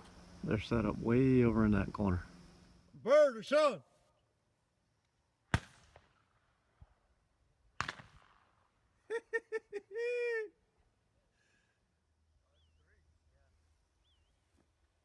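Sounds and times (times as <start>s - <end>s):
shotgun shots: 5.5s - 6.1s, 7.8s - 8.4s.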